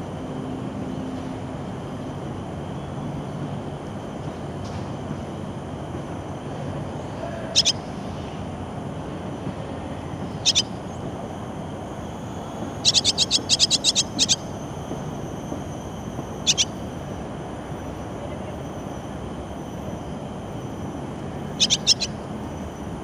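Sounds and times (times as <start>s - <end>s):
swallows chirping: 7.5s - 7.8s, 10.4s - 10.7s, 12.4s - 14.5s, 16.4s - 16.8s, 21.6s - 22.2s.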